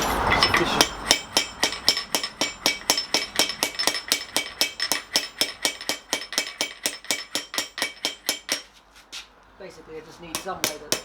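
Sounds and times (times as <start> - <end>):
hammer blows on steel: 0.0 - 8.8.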